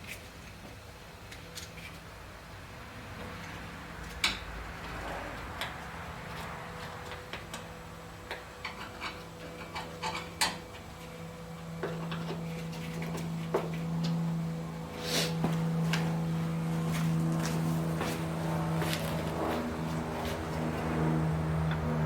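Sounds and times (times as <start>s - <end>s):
steady low hum: 0.0s - 22.0s
tools and metal parts clicking: 8.6s - 10.6s.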